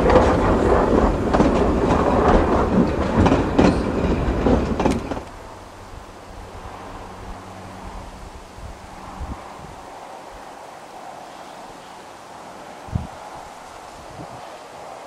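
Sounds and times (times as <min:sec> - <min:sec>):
wheels clicking over rail joints: 0:00.0 - 0:09.8
faint wind noise: 0:00.0 - 0:15.0
railway carriages rumbling past: 0:00.0 - 0:15.0.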